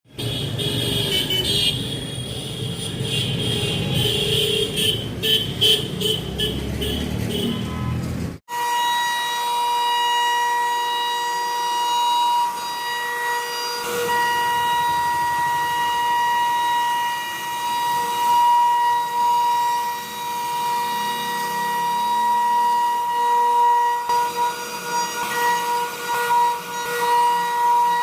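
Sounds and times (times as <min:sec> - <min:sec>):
router spindle whine: 0:08.5 - 0:28.0.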